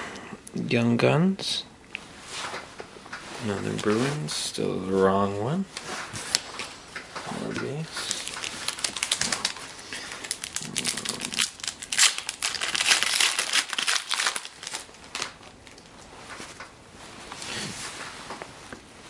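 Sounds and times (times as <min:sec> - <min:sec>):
wrapper crinkling and rustling: 0:06.1 - 0:16.7.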